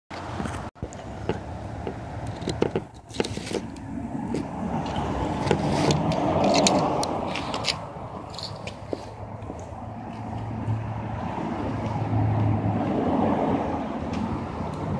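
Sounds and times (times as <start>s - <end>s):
car engine starting and revving: 9.7s - 14.9s.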